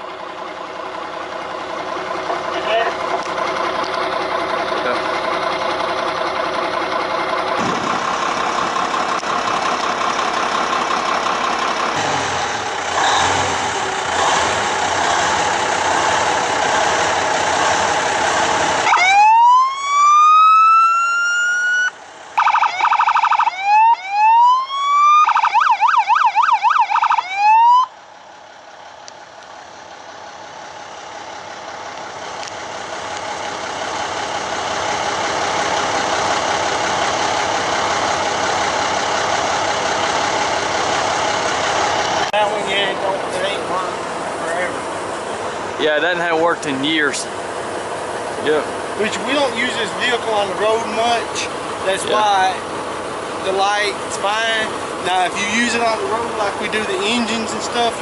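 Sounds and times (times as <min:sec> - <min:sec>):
fire truck engine droning: 0:00.0 - 0:58.0
electronic siren wailing: 0:18.8 - 0:27.9.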